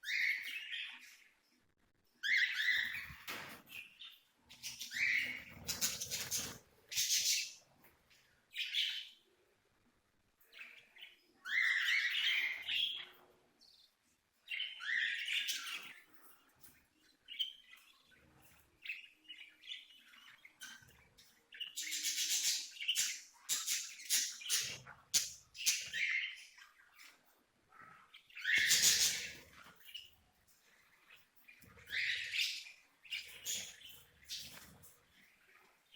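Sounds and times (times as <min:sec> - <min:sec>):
budgerigars chirping: 0:00.0 - 0:01.1, 0:02.2 - 0:07.7, 0:10.6 - 0:13.2, 0:18.8 - 0:27.2, 0:27.9 - 0:34.8.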